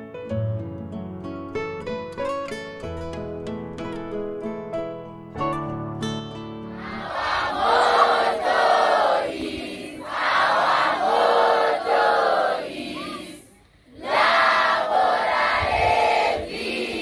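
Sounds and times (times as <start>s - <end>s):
group of voices singing: 6.8s - 17.0s.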